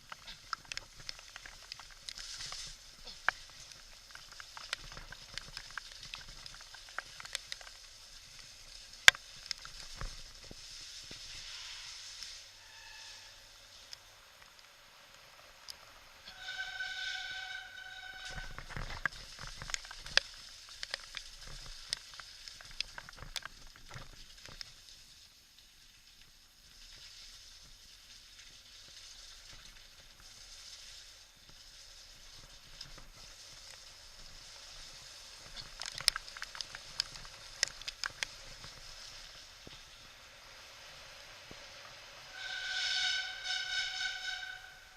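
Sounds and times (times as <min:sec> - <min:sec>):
bike clicks and rattles: 0:00.0 - 0:12.4, 0:17.5 - 0:40.1
heavy rain hiss: 0:00.0 - 0:23.2, 0:24.8 - 0:44.9
faint squeal: 0:11.3 - 0:13.6, 0:16.2 - 0:18.8, 0:42.2 - 0:44.9.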